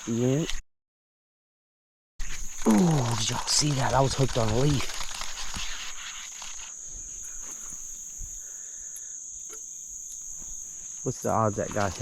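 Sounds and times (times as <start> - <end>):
high-pitched insect chorus: 0.0 - 0.6, 2.2 - 12.0
faint ticks: 2.6 - 10.7.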